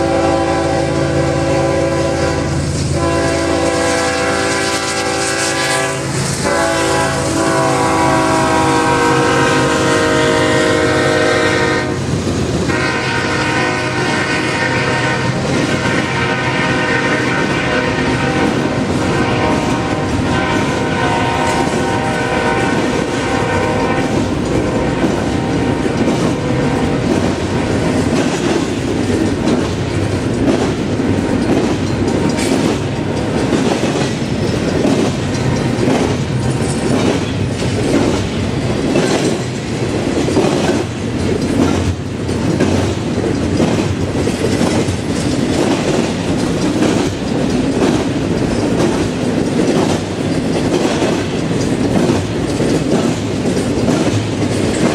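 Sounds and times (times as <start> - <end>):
freight train horn: 0.0 - 28.2
train cars rumbling past: 0.0 - 54.9
wheels clacking on track: 0.0 - 54.9.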